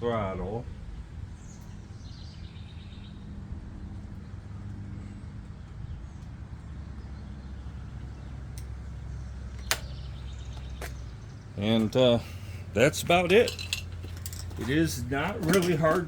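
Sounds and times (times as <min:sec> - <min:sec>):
lawn mower engine running: 0:07.4 - 0:16.0.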